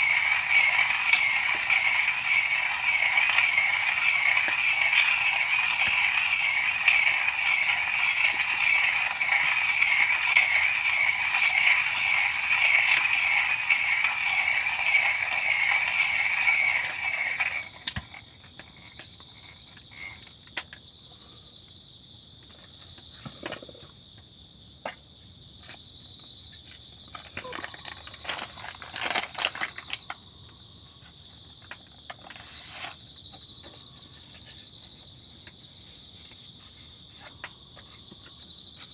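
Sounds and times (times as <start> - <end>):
hand coffee mill grinding: 0.0 - 20.3, 27.2 - 30.2
crickets chirping: 0.0 - 38.9.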